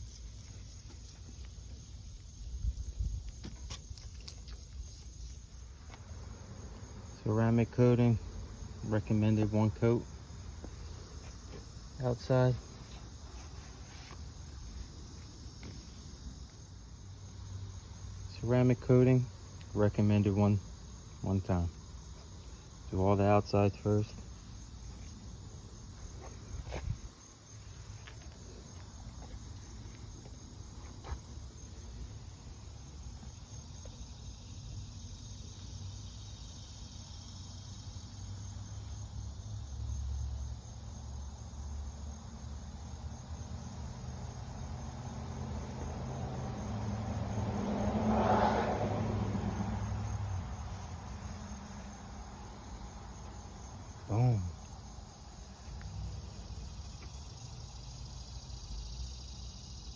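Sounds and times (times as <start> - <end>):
crickets chirping: 0.0 - 59.9
vehicle passing: 44.4 - 53.8.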